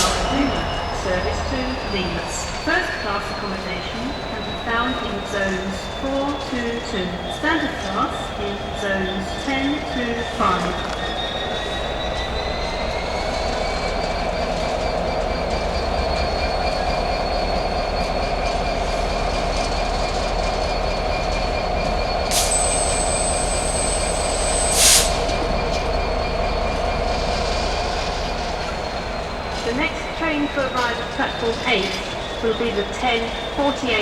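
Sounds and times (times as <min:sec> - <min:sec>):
train rumble: 0:00.0 - 0:34.0
wheel squeal on rails: 0:00.0 - 0:34.0.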